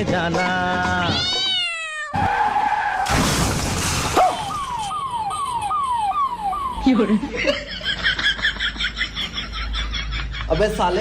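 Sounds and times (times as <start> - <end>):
tyre skid squealing: 2.1 - 3.2
noisy crash: 2.6 - 4.9.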